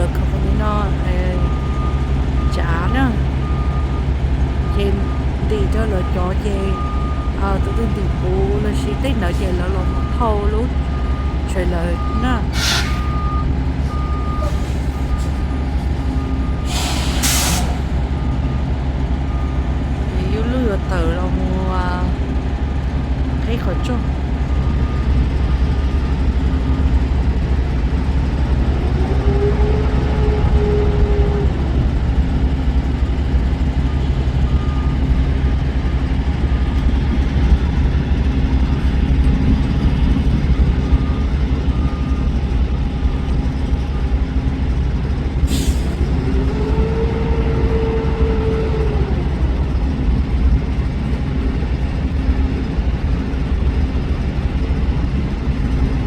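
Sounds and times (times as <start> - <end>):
truck engine and road rumble: 0.0 - 56.0
brief hiss: 12.5 - 13.1, 16.7 - 18.0.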